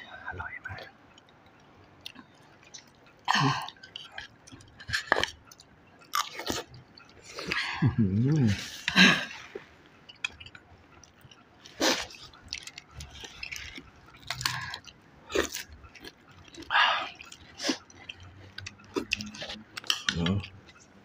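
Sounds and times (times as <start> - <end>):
chewing and mouth noises: 0.4 - 21.0.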